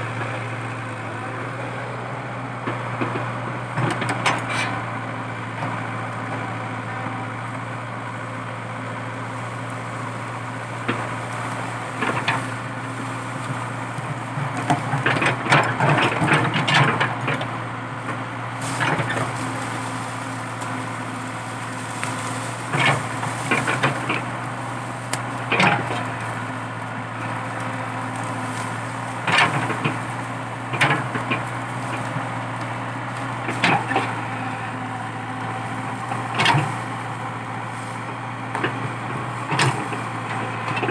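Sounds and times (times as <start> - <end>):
excavator diesel engine running: 0.0 - 40.9
wood and roots cracking: 9.6 - 40.9.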